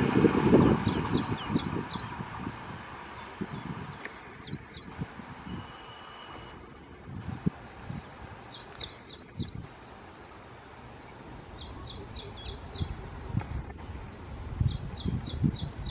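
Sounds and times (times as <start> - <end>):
low outdoor rumble: 0.0 - 15.9
bird chirping: 0.8 - 2.2, 3.2 - 6.6, 7.6 - 10.4, 11.0 - 15.9.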